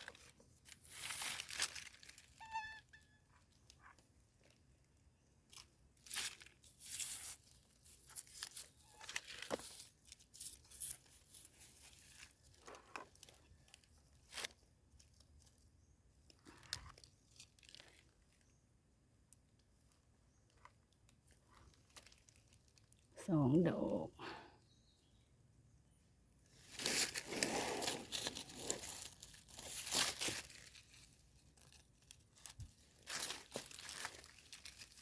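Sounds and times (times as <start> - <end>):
leaf litter rustling and snapping: 0.0 - 2.4, 5.5 - 15.6, 16.3 - 18.4, 26.6 - 35.0.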